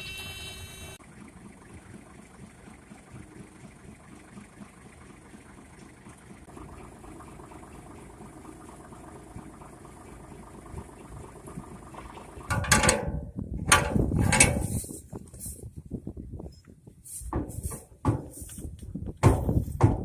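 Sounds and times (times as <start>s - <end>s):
tractor engine idling: 0.0s - 20.0s
loud mechanical clunks and rattles: 10.7s - 14.9s, 19.1s - 20.0s.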